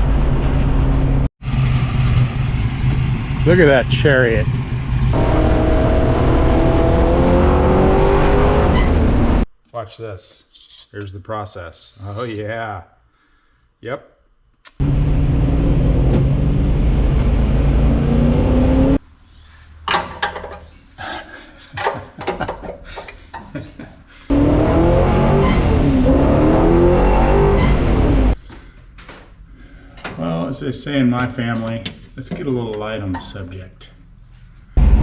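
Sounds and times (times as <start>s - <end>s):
car engine revving: 1.5s - 9.5s, 14.8s - 19.0s, 24.3s - 28.4s.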